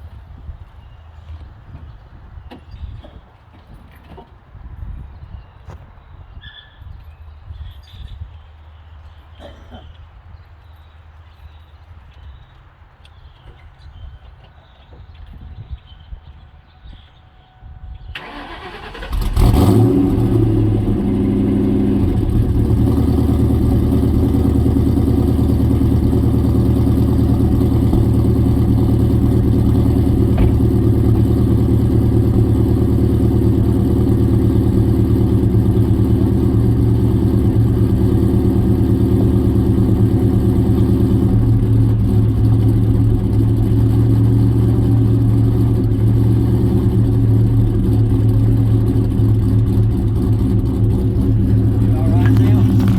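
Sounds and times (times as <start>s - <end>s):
car engine starting and idling: 18.0s - 52.9s
starter motor cranking: 18.2s - 19.8s
engine clacking and ticking: 18.2s - 52.9s.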